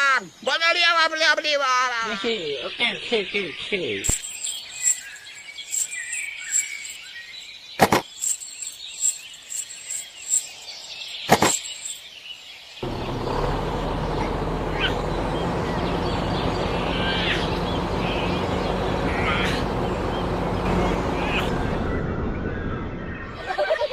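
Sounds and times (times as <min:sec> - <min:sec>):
small birds chirping: 0:02.0 - 0:23.4
low hum: 0:12.8 - 0:23.4.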